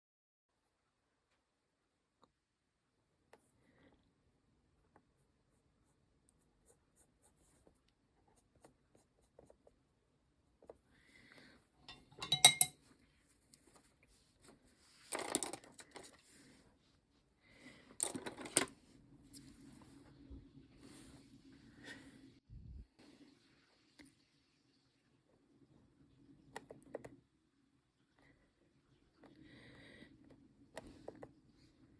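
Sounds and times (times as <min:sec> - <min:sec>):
small objects clinking and clattering: 0:11.9 - 0:12.7.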